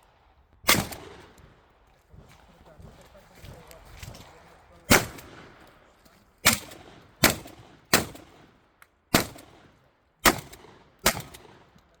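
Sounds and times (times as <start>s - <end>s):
shotgun shots with echo: 0.6s - 1.4s, 4.9s - 5.6s, 6.4s - 8.5s, 9.1s - 11.7s.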